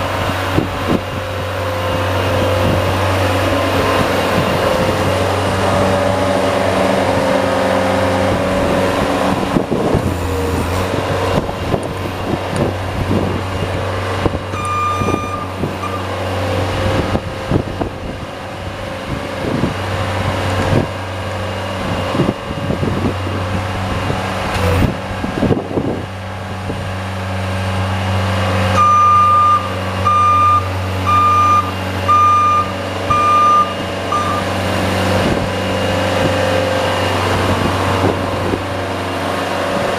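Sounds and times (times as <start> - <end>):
snow plow engine running: 0.0 - 39.9
backup alarm beeping: 14.5 - 16.0, 28.8 - 34.5.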